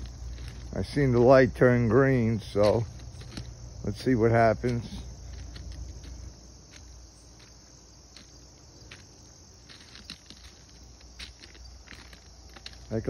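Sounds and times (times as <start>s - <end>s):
footsteps on track ballast: 0.0s - 13.0s
insects chirring: 0.0s - 13.0s.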